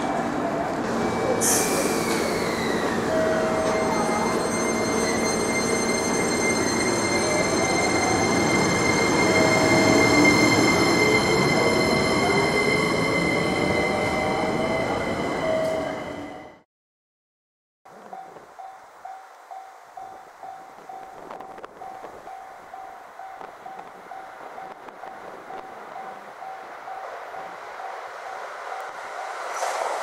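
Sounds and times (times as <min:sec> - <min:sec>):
electric train rolling: 0:00.0 - 0:16.6, 0:18.1 - 0:30.0
high squeal of held tones: 0:01.2 - 0:15.0.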